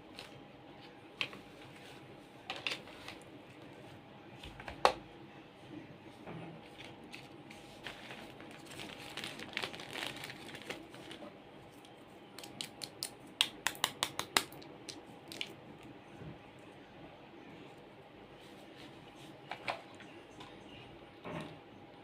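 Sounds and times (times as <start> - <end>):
plastic toys rustling: 6.7 - 11.3.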